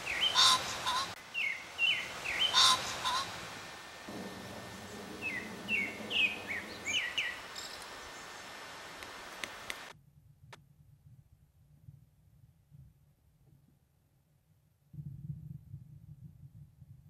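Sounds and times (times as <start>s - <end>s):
birds chirping: 0.0s - 9.9s
harsh bird calls: 0.0s - 9.9s.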